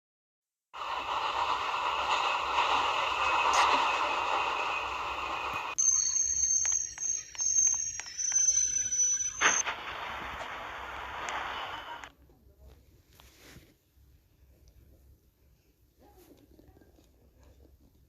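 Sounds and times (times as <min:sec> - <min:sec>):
metro train running: 0:00.8 - 0:12.1
high-pitched tone: 0:05.8 - 0:09.6.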